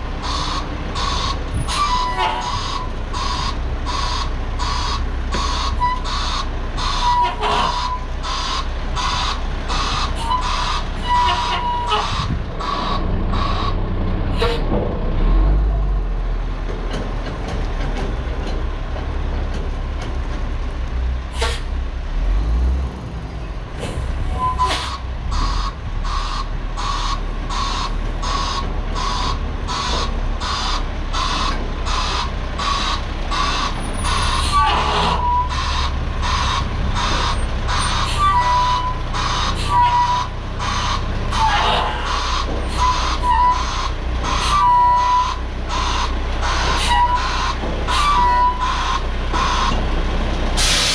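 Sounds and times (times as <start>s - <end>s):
diesel engine running: 0.0s - 50.9s
reversing alarm beeping: 0.2s - 13.8s, 24.4s - 41.1s, 42.2s - 49.8s.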